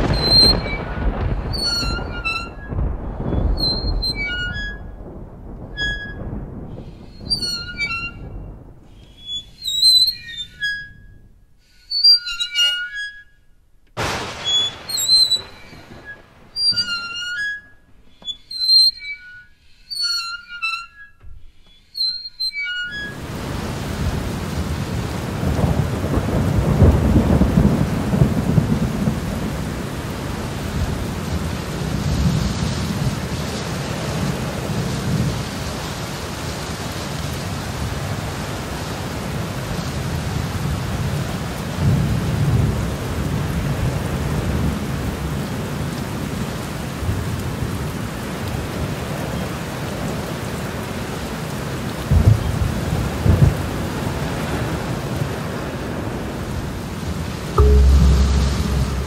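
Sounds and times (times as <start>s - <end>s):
thunder rumbling: 0.0s - 10.2s, 14.0s - 17.2s, 23.1s - 36.4s, 52.0s - 59.0s
steady rain: 0.0s - 10.8s, 13.9s - 18.4s, 23.0s - 59.0s.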